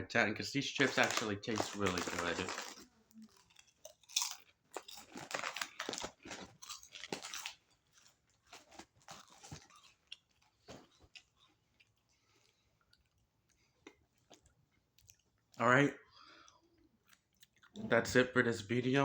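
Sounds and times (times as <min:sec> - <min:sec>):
chips being crunched: 0:00.8 - 0:10.0
quiet chewing: 0:00.9 - 0:17.8.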